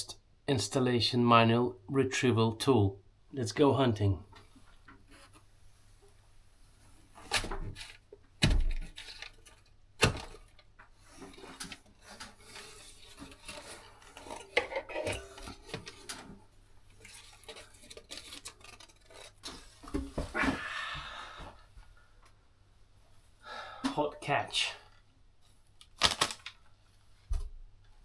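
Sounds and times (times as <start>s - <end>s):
tool scraping and rattling: 11.1s - 16.4s, 17.0s - 19.7s.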